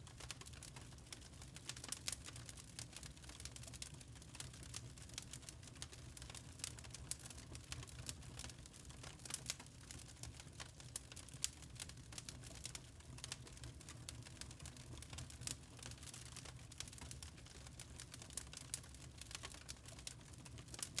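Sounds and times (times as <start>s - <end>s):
burning charcoal crackling: 0.0s - 21.0s.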